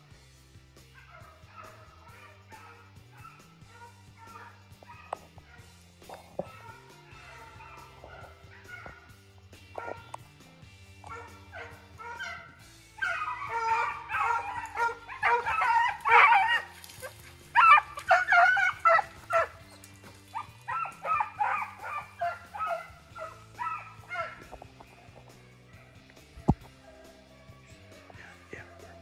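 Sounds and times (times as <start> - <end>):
faint background music: 0.0 - 29.0
hounds baying: 0.9 - 29.0.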